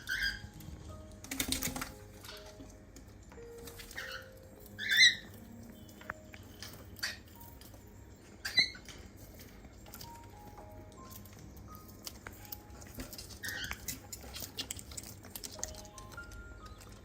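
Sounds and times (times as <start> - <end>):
cockatiel chirps: 0.0 - 0.6, 3.7 - 5.4, 7.0 - 7.4, 8.4 - 8.9, 13.4 - 14.0
water pattering: 0.0 - 17.0.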